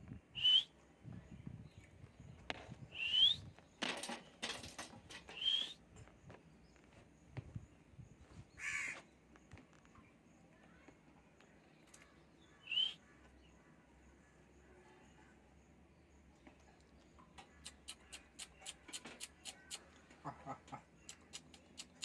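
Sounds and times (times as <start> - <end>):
lovebird screechy calls: 5.3 - 5.8.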